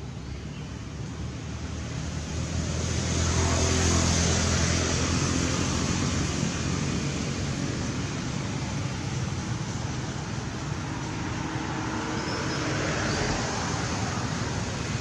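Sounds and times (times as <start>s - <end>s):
road noise: 0.0s - 15.0s
vehicle engine passing by: 1.2s - 9.8s.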